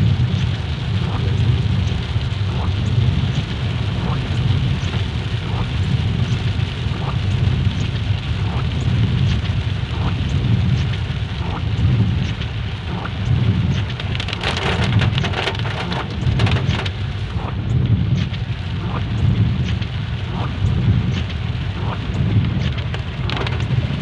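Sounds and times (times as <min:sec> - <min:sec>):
heavy rain hissing: 0:00.0 - 0:24.0
low rumble: 0:00.0 - 0:24.0
single raindrops ticking: 0:07.8 - 0:24.0.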